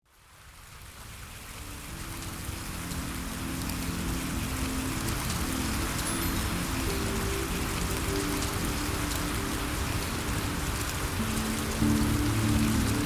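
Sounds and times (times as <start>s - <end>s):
steady rain on a surface: 0.0s - 13.0s
calm background music: 1.4s - 13.0s.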